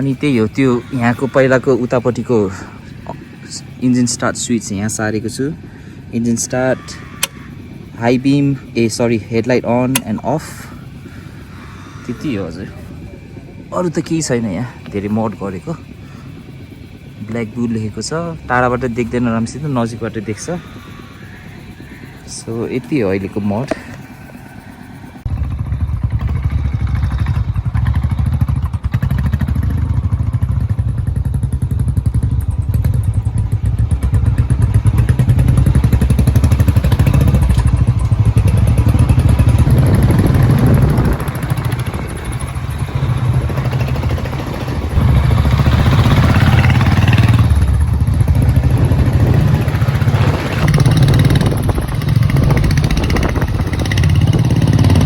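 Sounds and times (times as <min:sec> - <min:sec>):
motorcycle engine thumping: 0:09.4 - 0:11.1, 0:25.3 - 0:55.0.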